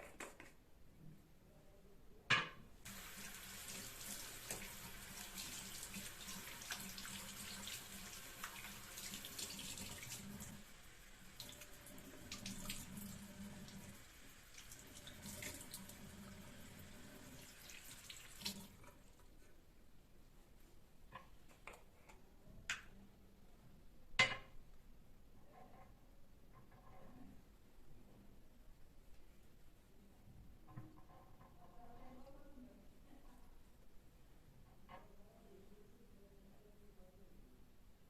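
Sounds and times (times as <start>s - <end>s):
tap water running into sink: 2.9s - 19.0s.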